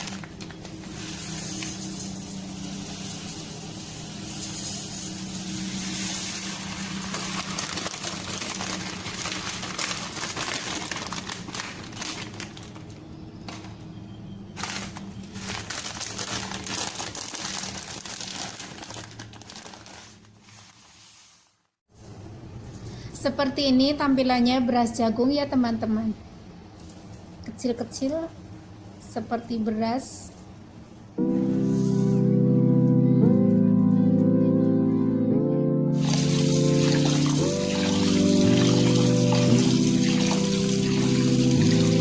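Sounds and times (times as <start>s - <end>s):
plastic packet crinkling: 0.0s - 13.9s, 14.6s - 21.3s, 36.0s - 42.0s.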